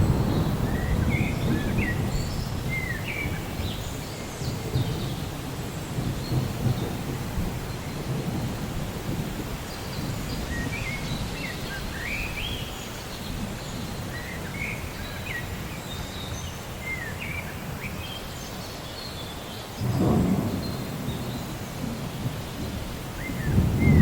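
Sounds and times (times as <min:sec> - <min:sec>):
distant thunder: 0:00.0 - 0:12.6, 0:19.8 - 0:24.0
rain rumbling: 0:00.0 - 0:24.0.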